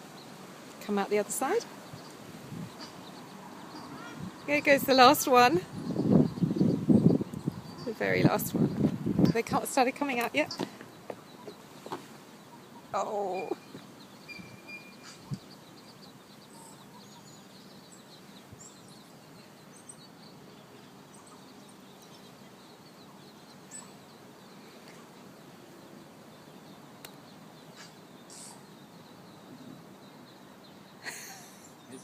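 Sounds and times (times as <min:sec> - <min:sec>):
outdoor background noise: 0:00.0 - 0:32.0
high bird chirps: 0:10.1 - 0:25.0.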